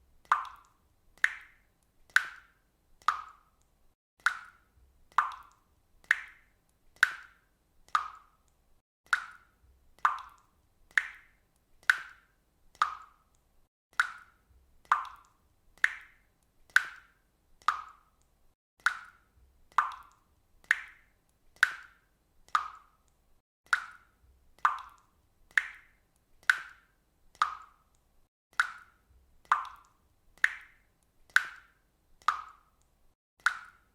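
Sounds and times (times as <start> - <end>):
water dripping: 0.1 - 33.9.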